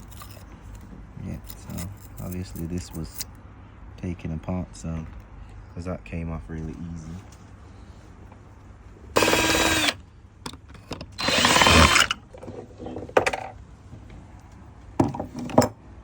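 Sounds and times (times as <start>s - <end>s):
cordless drill running: 9.2s - 10.0s, 11.2s - 12.2s.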